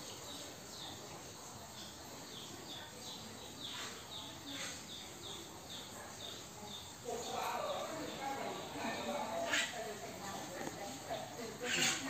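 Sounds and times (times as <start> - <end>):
faint bird chirping: 0.0 - 12.0.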